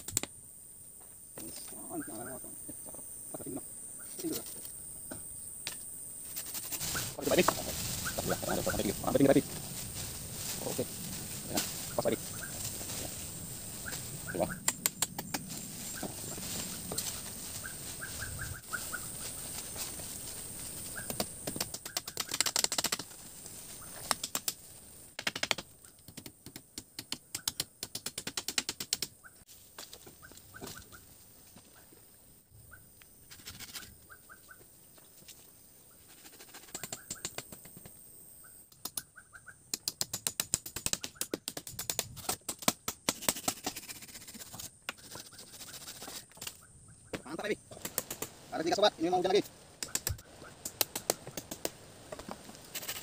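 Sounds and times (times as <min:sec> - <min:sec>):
sharp clicks and crackles: 0:00.0 - 0:00.3, 0:13.9 - 0:15.6, 0:21.0 - 0:23.1, 0:24.0 - 0:29.2, 0:47.7 - 0:48.4, 0:49.8 - 0:53.0
high insect drone: 0:00.0 - 0:27.9, 0:43.0 - 0:53.0.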